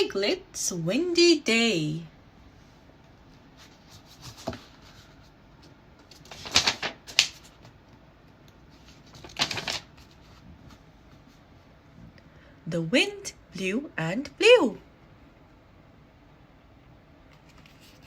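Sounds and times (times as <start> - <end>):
book pages rustling: 3.5 - 11.5, 17.3 - 18.0.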